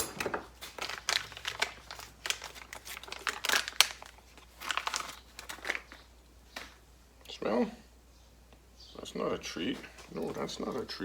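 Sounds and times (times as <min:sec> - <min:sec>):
packaging crinkling: 0:00.0 - 0:06.8.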